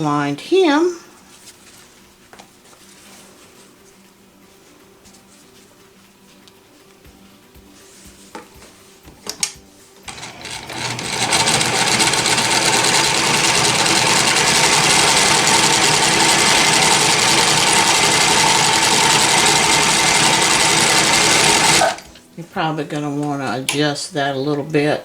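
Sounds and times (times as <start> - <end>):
sewing machine stitching: 10.1 - 22.2.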